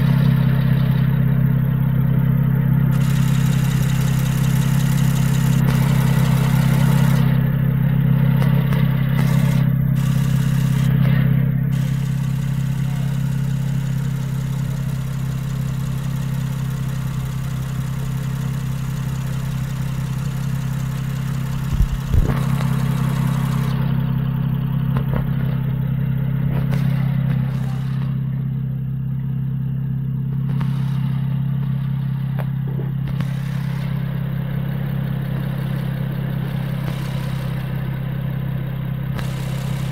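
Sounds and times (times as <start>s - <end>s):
car engine idling: 0.0s - 39.9s
engine knocks: 0.0s - 39.9s.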